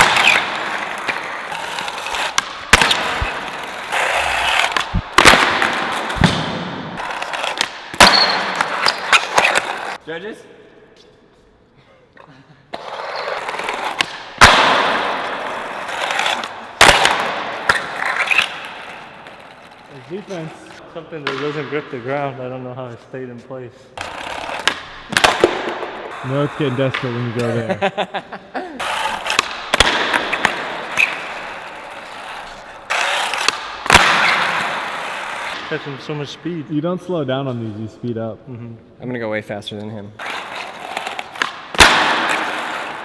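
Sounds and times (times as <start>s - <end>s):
skateboard bearings grinding: 0.0s - 6.2s, 7.0s - 10.0s, 14.9s - 20.8s, 24.0s - 27.6s, 28.8s - 29.4s, 30.2s - 35.6s, 40.2s - 43.0s
skateboard bearings rolling rasp: 0.2s - 5.0s, 26.1s - 26.9s, 28.8s - 29.4s
skateboard clacking on ground: 40.2s - 43.0s.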